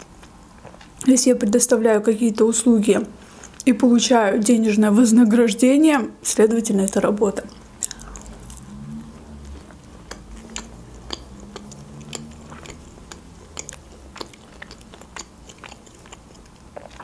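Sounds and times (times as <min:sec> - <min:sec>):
person chewing food: 0:00.0 - 0:01.0, 0:07.5 - 0:17.0.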